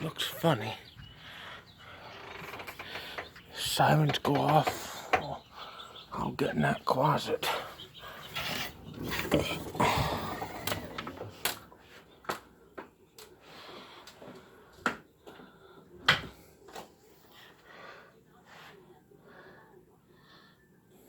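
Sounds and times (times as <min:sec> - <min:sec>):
sharp knocks and clicks: 0:02.4 - 0:05.4.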